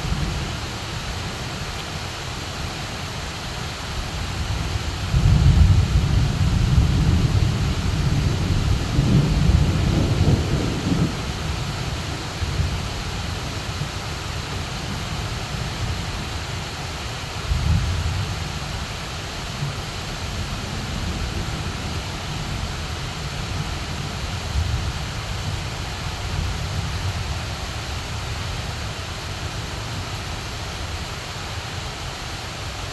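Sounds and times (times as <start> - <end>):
heavy rain pouring: 0.0 - 32.9
thunder rumbling: 4.6 - 12.9.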